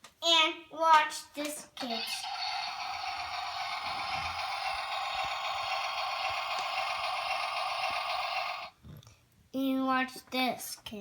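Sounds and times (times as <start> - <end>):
toy auger mechanism running: 1.8 - 8.7.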